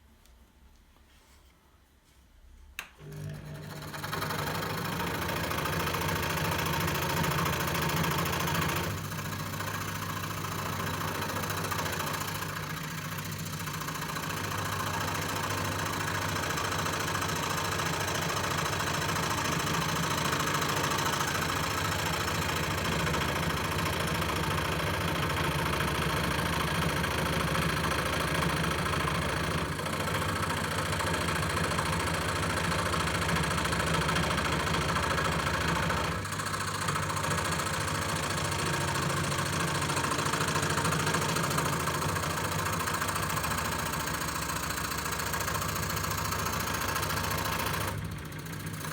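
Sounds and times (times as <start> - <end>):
scroll saw running: 3.0 - 48.9.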